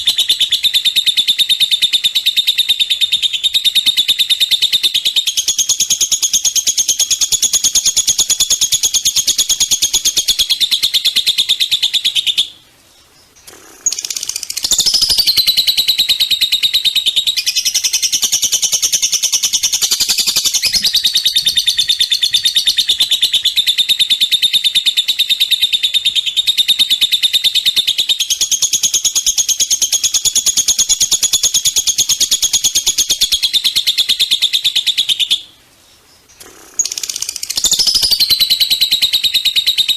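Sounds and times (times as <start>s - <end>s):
songbird rattling trill: 0.0s - 12.5s, 13.2s - 35.4s, 36.2s - 39.9s.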